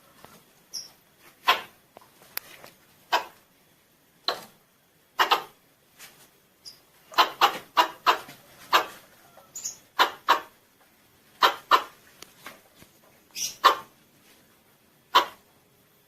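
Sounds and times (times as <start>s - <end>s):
squirrel chip calls: 9.5s - 10.5s, 11.4s - 11.9s, 13.3s - 13.9s, 15.1s - 15.4s.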